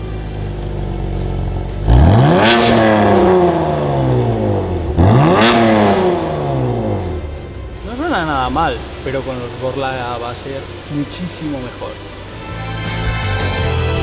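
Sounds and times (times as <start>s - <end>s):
car engine idling: 0.0s - 13.5s
car engine revving sharply: 1.8s - 12.2s.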